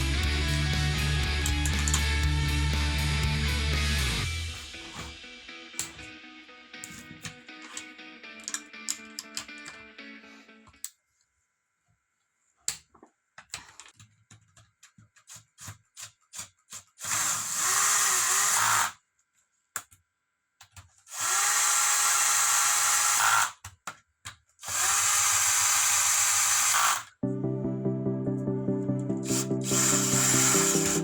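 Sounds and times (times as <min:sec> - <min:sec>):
tools and parts clicking: 0:01.4 - 0:02.2, 0:06.8 - 0:09.8, 0:12.7 - 0:17.5
power tool motor whine: 0:17.0 - 0:19.0, 0:21.1 - 0:23.5, 0:24.6 - 0:27.1, 0:29.3 - 0:31.0.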